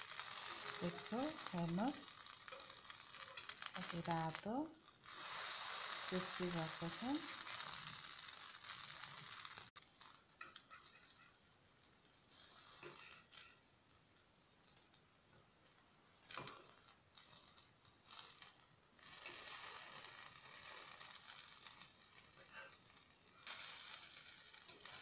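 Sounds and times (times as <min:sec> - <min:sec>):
food sizzling in oil: 0:00.0 - 0:25.0
metal tongs tapping on pan: 0:10.4 - 0:11.4.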